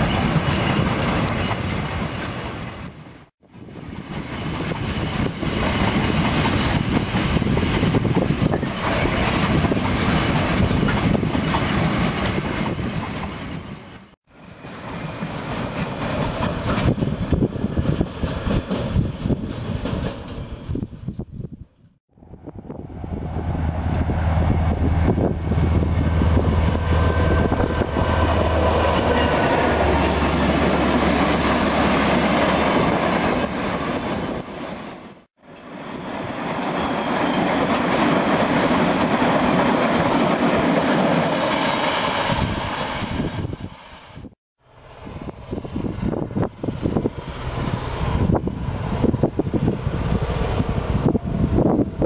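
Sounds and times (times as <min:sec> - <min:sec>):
wind on the microphone: 0:00.0 - 0:13.7, 0:16.4 - 0:29.2, 0:42.2 - 0:44.4, 0:45.0 - 0:52.0
steel wheels on rails: 0:00.0 - 0:21.8.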